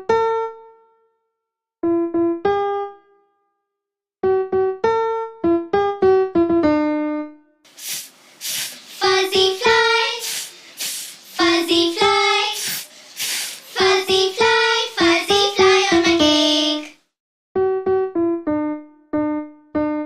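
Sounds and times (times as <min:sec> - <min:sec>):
electronic keyboard melody: 0:01.8 - 0:03.3, 0:04.2 - 0:07.5, 0:17.6 - 0:20.0
loud hissing: 0:07.7 - 0:15.9
child singing: 0:08.5 - 0:17.0.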